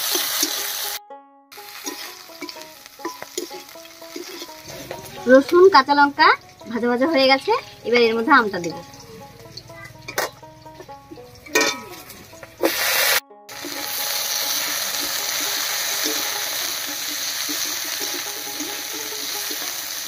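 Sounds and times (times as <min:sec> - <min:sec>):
mango sizzling in hot oil: 0:00.0 - 0:20.0
loud oil hisses: 0:01.6 - 0:05.2, 0:12.6 - 0:20.0.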